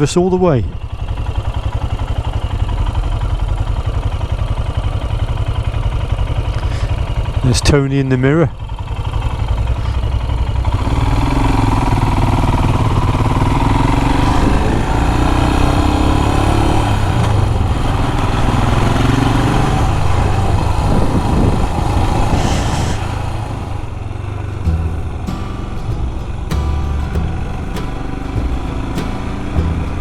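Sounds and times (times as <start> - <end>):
motorcycle engine running: 0.6 - 30.0
wind rushing over microphone: 12.6 - 24.6.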